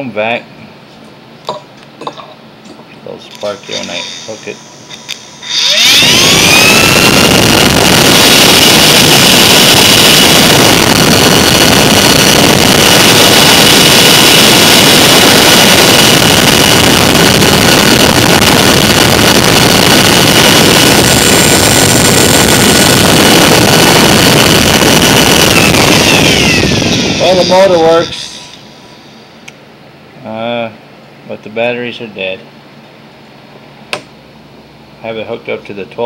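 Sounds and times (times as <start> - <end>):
electric motor whining: 3.7 - 29.1.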